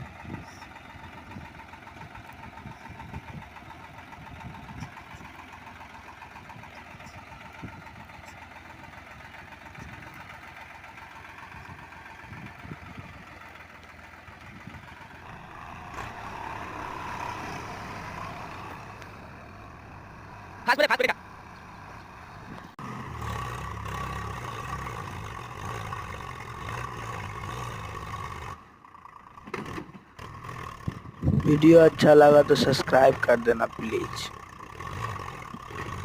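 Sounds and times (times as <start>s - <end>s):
tractor engine idling: 0.0s - 36.0s.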